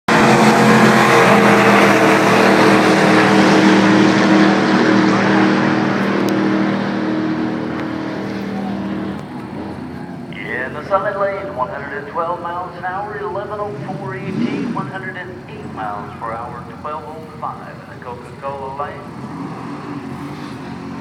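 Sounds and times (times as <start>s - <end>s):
car engine running: 0.1s - 21.0s.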